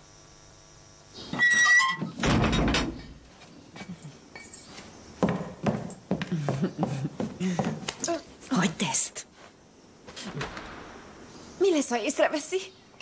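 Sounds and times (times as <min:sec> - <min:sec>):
door hinges squealing: 0:01.3 - 0:03.2
heavy door thud: 0:02.0 - 0:03.2, 0:10.2 - 0:11.2.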